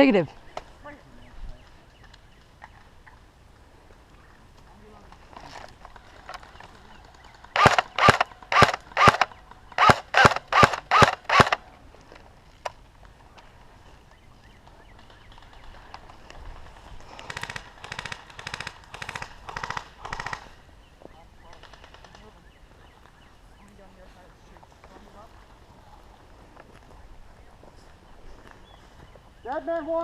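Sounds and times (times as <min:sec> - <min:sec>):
airsoft guns firing bursts: 0:07.5 - 0:11.6, 0:17.2 - 0:20.5, 0:21.4 - 0:22.4.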